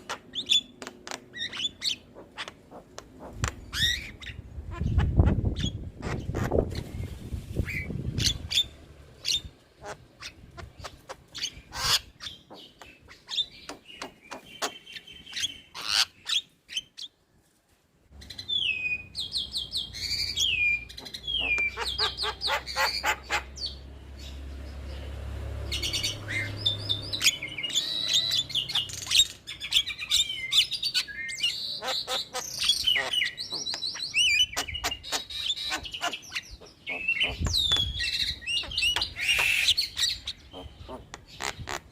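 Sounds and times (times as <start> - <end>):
bird singing whistles and clicks: 20.1 - 21.8, 33.4 - 35.3, 37.2 - 40.2.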